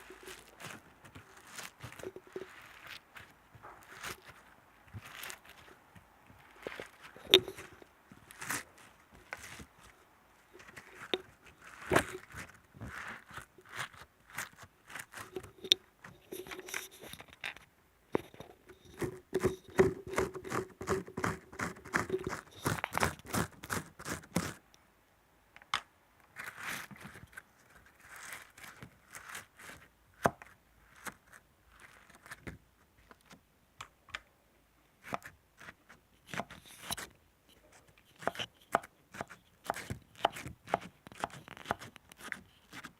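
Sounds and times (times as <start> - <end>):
crinkling of handled objects: 0.0 - 24.8, 25.6 - 34.3
objects clicking and tapping: 0.1 - 3.0, 6.5 - 7.9, 15.1 - 23.3.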